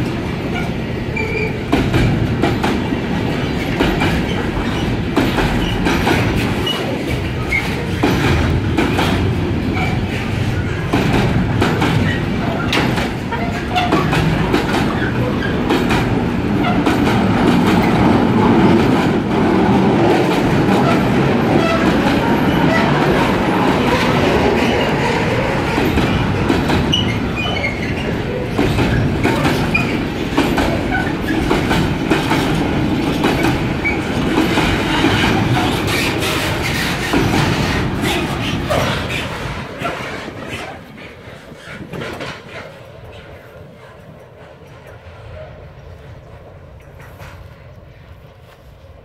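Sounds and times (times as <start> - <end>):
freight train wheels clattering: 0.0 - 49.0.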